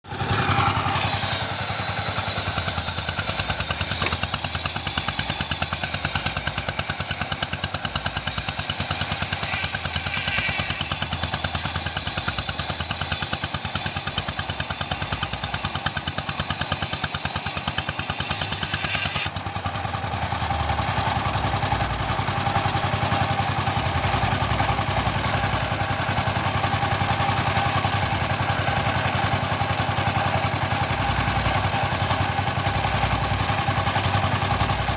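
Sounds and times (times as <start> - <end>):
saw engine running: 0.0 - 34.9
saw cutting wood: 0.1 - 19.6.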